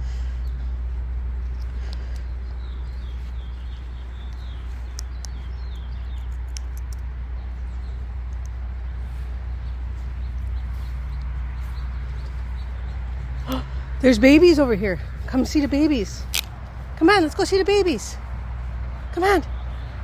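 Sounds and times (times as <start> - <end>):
sharp high clicks: 4.2 - 7.1, 16.2 - 16.7
wind rumble on microphone: 14.8 - 20.0.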